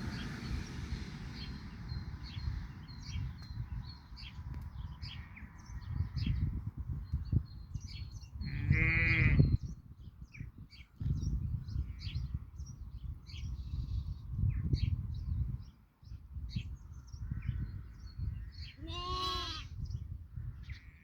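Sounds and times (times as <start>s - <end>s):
small birds chirping: 1.3s - 21.0s
sheep bleat: 8.5s - 9.5s, 18.8s - 19.7s.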